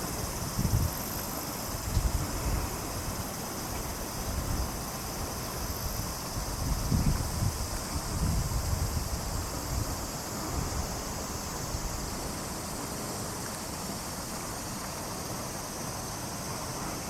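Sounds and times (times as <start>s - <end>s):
wind gusting on microphone: 0.0s - 1.1s, 4.2s - 12.2s
running water rushing: 0.0s - 17.0s.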